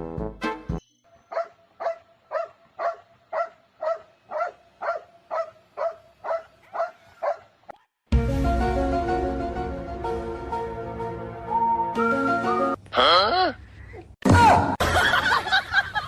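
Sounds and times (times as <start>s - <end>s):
music: 0.0s - 0.8s, 8.1s - 12.8s
dog barking: 1.3s - 7.9s.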